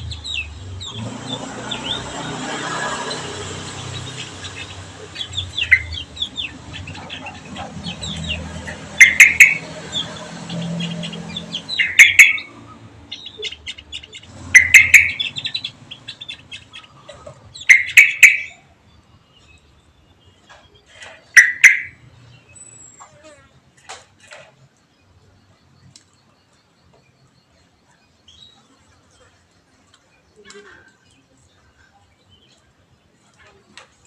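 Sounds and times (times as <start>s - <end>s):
bursts of rapid bird calls: 0.0s - 18.8s, 21.0s - 22.2s
caged birds chirping: 0.0s - 34.0s.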